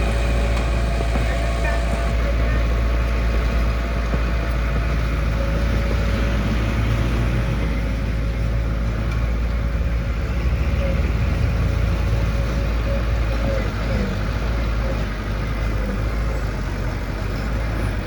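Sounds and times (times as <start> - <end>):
diesel engine rumbling: 0.0 - 18.0
machinery whine: 0.0 - 18.0.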